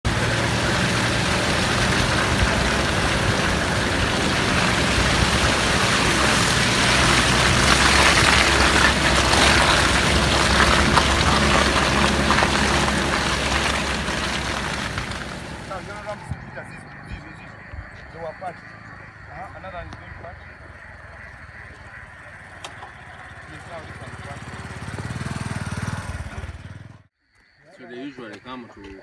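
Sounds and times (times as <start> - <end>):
broad rushing noise: 0.0 - 16.2
vehicle engine humming: 0.0 - 27.0.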